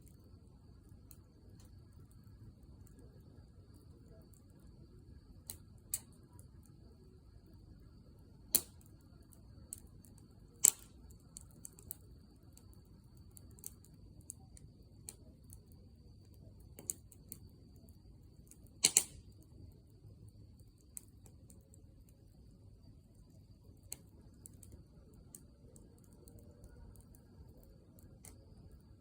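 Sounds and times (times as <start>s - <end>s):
campfire crackling and popping: 0.1s - 22.4s, 23.0s - 29.0s
flames rushing: 18.4s - 20.0s.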